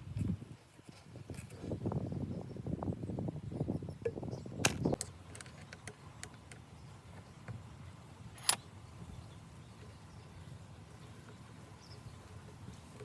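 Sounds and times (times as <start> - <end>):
tools clicking and knocking: 4.6 - 6.6.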